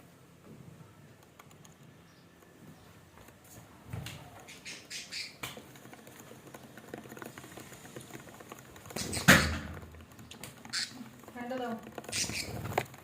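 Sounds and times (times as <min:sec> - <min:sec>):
birds scratching and tapping: 0:01.2 - 0:13.0.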